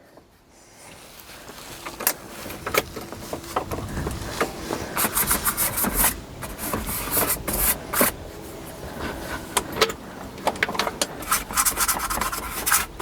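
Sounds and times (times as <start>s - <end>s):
objects scraping and rubbing: 1.6s - 9.6s, 11.2s - 13.0s.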